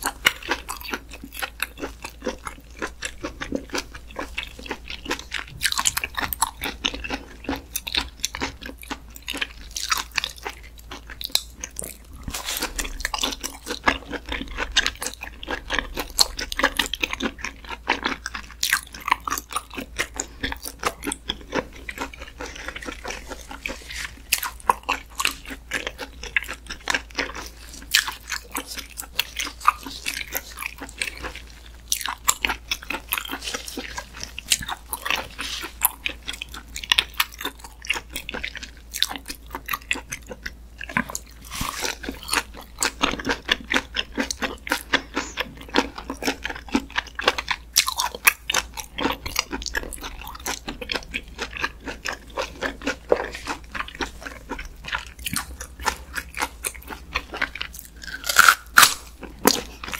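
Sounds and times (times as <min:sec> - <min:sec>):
wet chewing and biting: 0:00.0 - 0:59.9.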